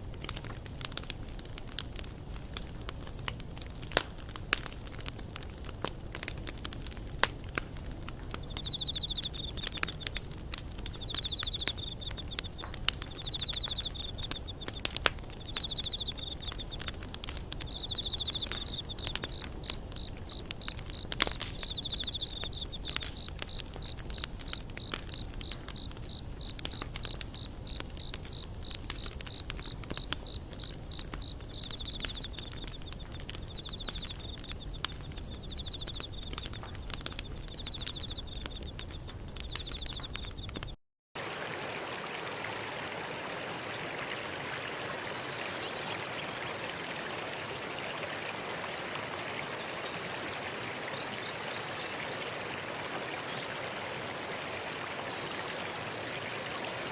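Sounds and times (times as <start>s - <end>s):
flowing water rumble: 0.0s - 40.3s, 41.2s - 56.9s
insects chirping trills: 0.0s - 40.8s
wood fire crackling and popping: 0.0s - 40.8s.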